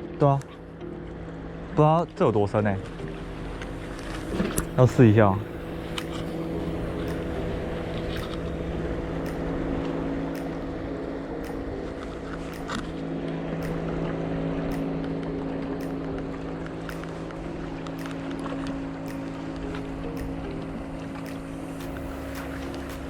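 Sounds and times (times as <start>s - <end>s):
motorboat engine droning: 0.0s - 23.0s
faint sharp ticks: 3.0s - 23.0s.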